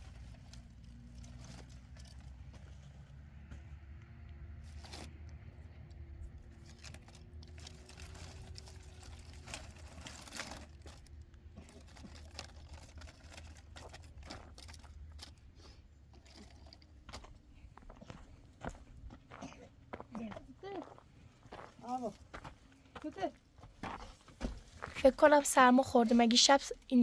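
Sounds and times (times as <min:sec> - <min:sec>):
low steady rumble: 0:00.0 - 0:20.4.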